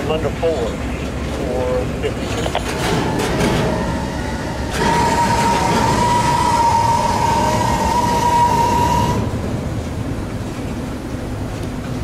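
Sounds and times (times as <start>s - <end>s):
freight train wheels rumbling: 0.0s - 12.0s
steady high tone: 2.7s - 9.9s.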